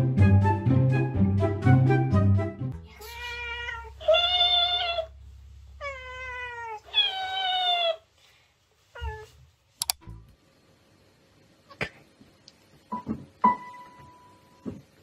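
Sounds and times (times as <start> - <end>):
cat meowing: 2.9 - 5.1, 5.8 - 8.0.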